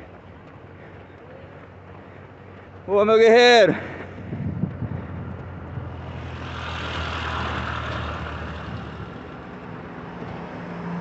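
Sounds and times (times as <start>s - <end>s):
vehicle passing by: 4.0s - 11.0s.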